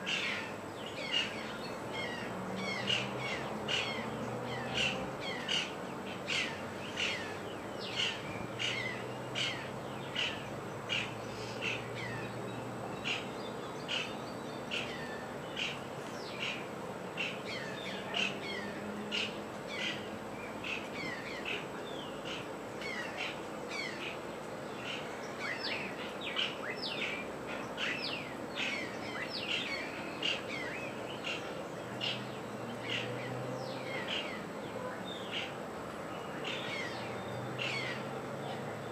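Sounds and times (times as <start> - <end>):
birds with sharply falling calls: 0.0 - 12.3.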